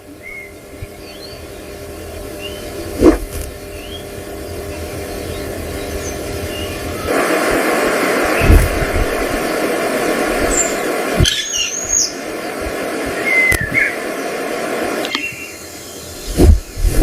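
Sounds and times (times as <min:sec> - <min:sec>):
bird chirps and whistles: 0:00.2 - 0:01.5, 0:02.4 - 0:02.9, 0:03.7 - 0:04.2, 0:05.2 - 0:07.1, 0:10.5 - 0:12.2, 0:13.1 - 0:14.1, 0:15.1 - 0:16.8
steady rushing noise: 0:02.9 - 0:03.6, 0:05.6 - 0:17.0.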